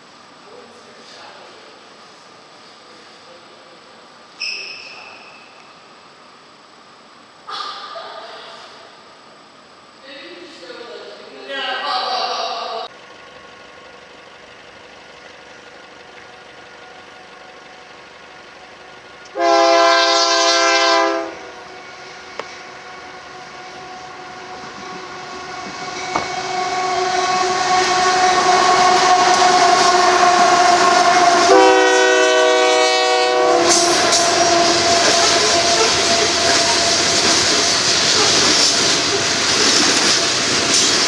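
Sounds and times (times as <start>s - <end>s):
diesel locomotive rumble: 12.8s - 41.0s
locomotive air horn blasts: 19.3s - 37.2s
train wheel clatter: 33.6s - 41.0s.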